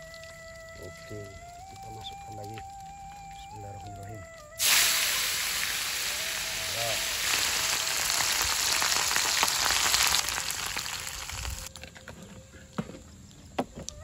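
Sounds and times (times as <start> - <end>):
fish sizzling in hot oil: 4.6 - 11.7.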